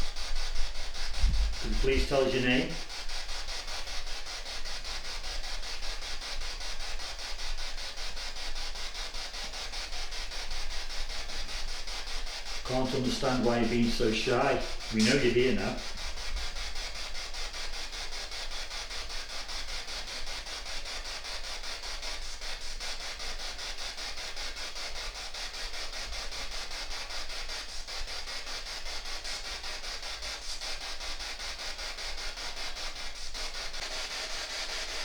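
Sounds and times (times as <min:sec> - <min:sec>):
pulsing radio static: 0:00.8 - 0:02.9, 0:11.3 - 0:16.3.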